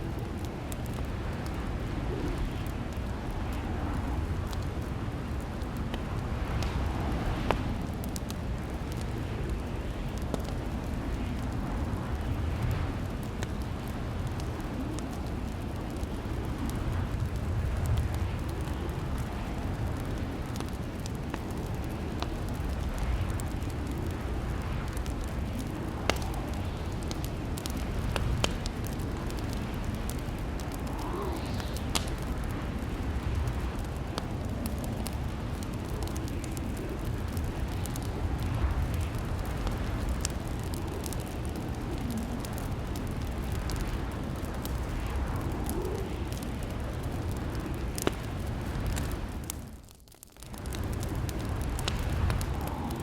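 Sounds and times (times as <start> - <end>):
fire pops and snaps: 0.0 - 53.0
low rumble of burning logs: 0.0 - 53.0
wood fire crackling: 0.0 - 53.0.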